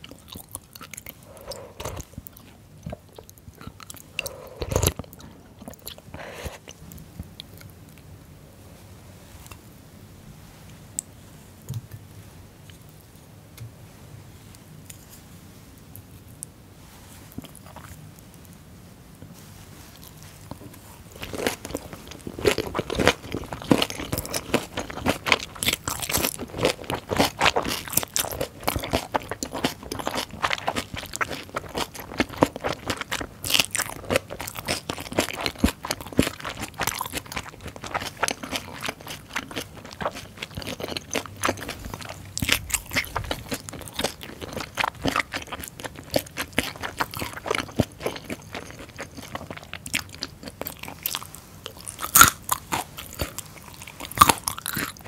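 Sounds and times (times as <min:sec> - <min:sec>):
wet crisp chewing crunches: 0:19.8 - 0:55.0.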